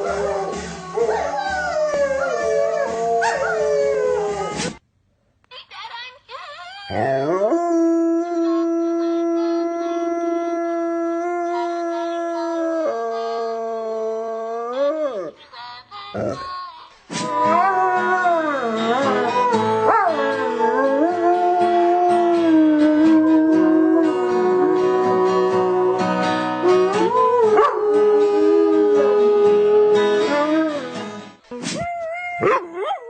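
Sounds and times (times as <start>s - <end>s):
held musical notes: 17.3s - 31.4s
dog howling: 17.4s - 30.8s.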